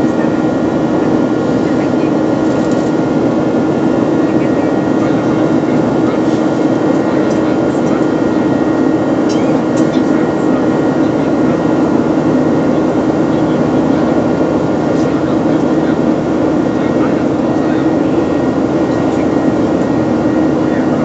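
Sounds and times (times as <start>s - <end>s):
airplane engines humming: 0.0s - 21.0s.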